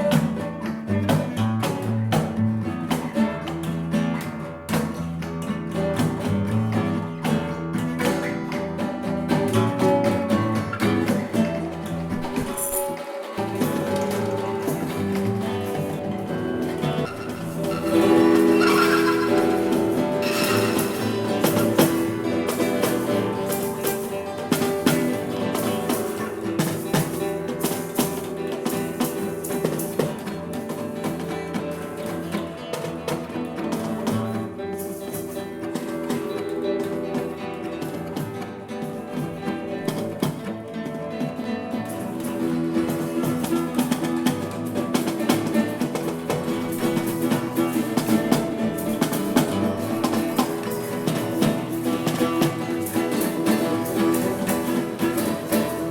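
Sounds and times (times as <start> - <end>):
electric guitar: 0.0 - 55.9
psychedelic rock band playing: 0.0 - 55.9
sharp drum hits: 17.0 - 23.1.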